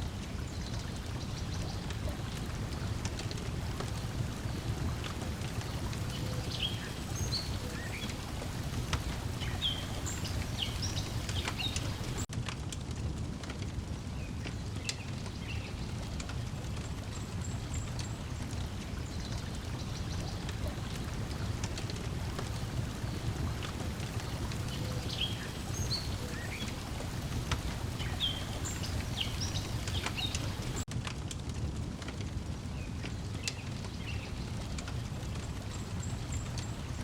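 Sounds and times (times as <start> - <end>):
water lapping: 0.0 - 12.3, 16.0 - 30.9
wood fire crackling: 0.0 - 37.0
birds chirping: 0.5 - 12.3, 17.1 - 30.8.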